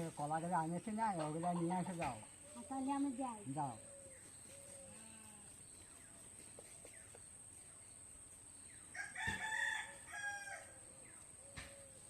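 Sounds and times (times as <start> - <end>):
rooster crowing: 8.9 - 10.8.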